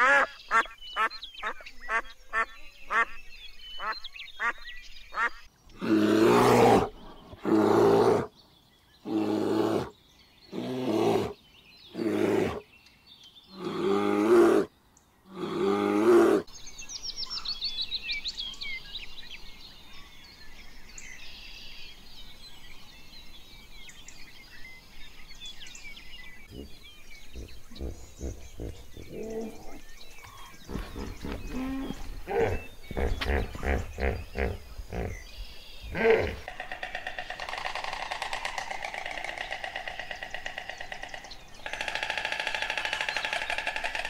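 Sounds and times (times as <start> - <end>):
birds chirping: 0.0 - 44.0
large animal calling: 26.5 - 35.3, 35.9 - 44.0.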